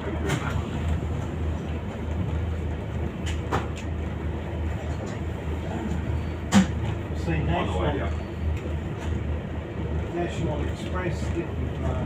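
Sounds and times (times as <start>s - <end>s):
bus body rattling: 0.0s - 12.0s
bus diesel engine drone: 0.0s - 12.0s
road noise: 0.0s - 12.0s.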